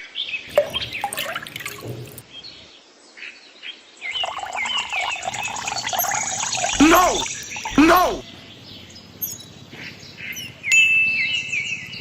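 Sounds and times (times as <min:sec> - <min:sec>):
birds chirping: 0:00.4 - 0:02.7, 0:04.1 - 0:10.6
water dripping and trickling: 0:00.5 - 0:02.3, 0:04.1 - 0:08.2.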